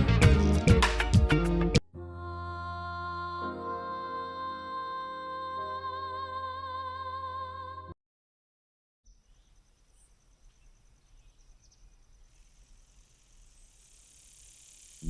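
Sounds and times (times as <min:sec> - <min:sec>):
insects chirring: 0:09.4 - 0:15.0.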